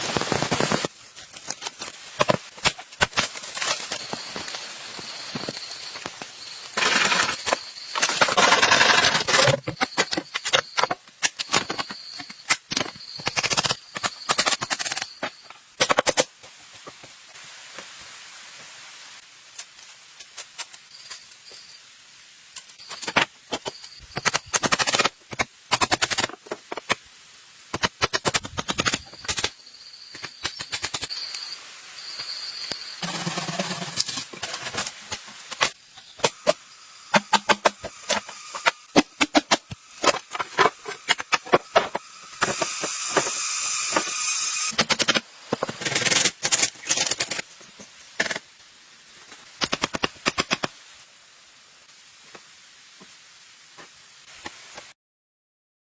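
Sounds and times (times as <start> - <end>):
thin high whine: 31.1 - 34.1.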